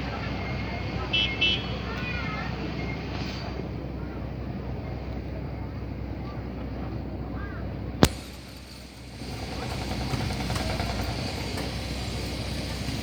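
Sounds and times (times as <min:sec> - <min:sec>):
low outdoor rumble: 0:00.0 - 0:13.0
sharp click: 0:08.0 - 0:08.2.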